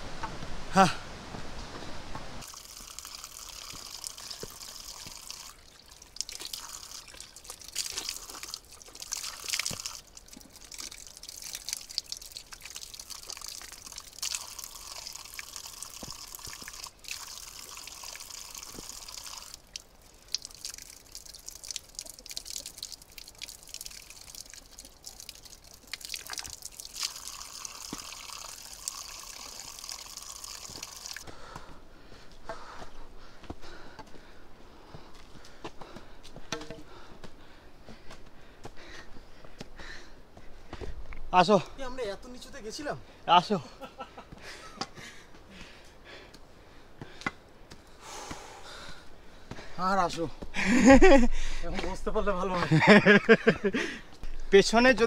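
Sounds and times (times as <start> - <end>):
water drips and ticks: 2.4 - 31.6, 47.0 - 55.0.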